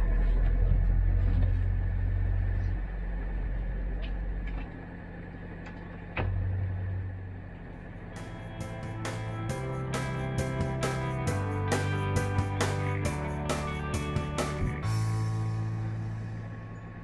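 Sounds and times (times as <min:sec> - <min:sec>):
music with plucked notes: 0:08.2 - 0:16.6.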